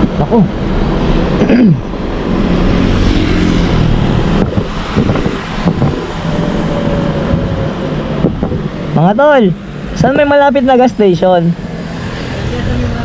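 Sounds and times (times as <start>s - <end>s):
wind on microphone: 0.8s - 9.0s.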